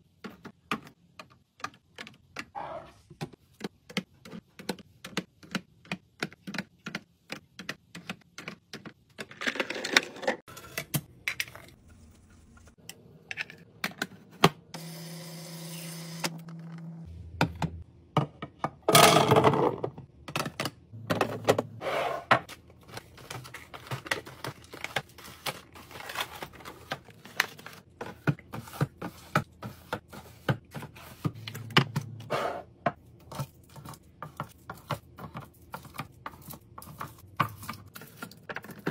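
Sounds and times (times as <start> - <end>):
containers and bottles clattering: 18.6 - 28.4.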